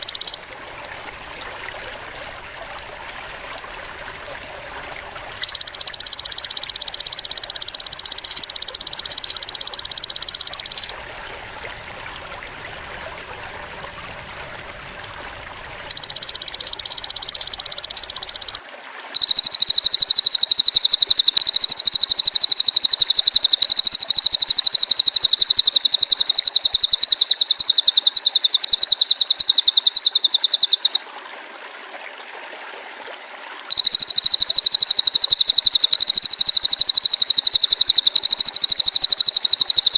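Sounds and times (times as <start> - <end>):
shrill buzzing bird trills: 0.0 - 0.4, 5.4 - 11.0, 15.9 - 18.6, 19.2 - 31.0, 33.7 - 39.9.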